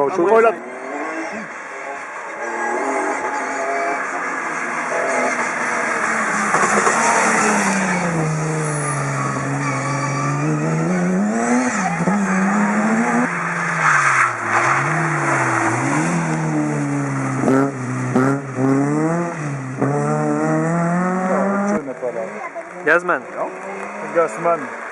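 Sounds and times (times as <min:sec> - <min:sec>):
rally car engine revving: 0:00.0 - 0:24.9
tyre squeal: 0:06.4 - 0:16.0.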